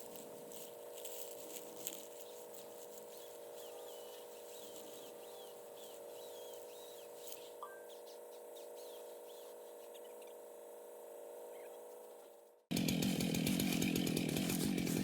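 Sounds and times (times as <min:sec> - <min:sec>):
bird chirping: 0:03.2 - 0:10.5, 0:11.5 - 0:11.8.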